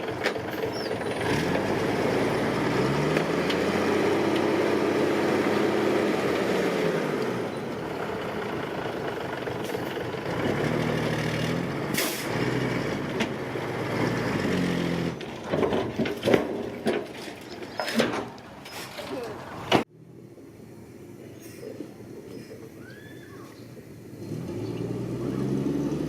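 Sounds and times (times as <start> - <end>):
diesel engine revving: 0.0 - 15.4, 24.0 - 26.0.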